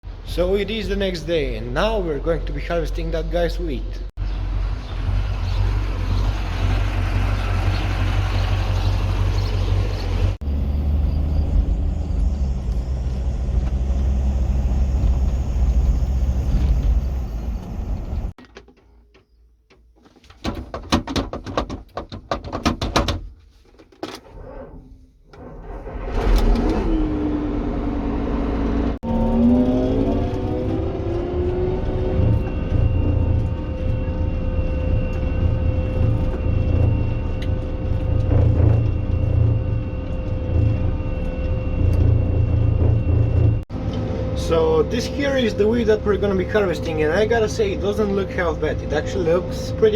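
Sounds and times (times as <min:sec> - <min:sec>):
vehicle engine rumbling: 0:00.0 - 0:18.4, 0:24.2 - 0:49.9
engine revving: 0:04.1 - 0:18.3, 0:25.6 - 0:49.8.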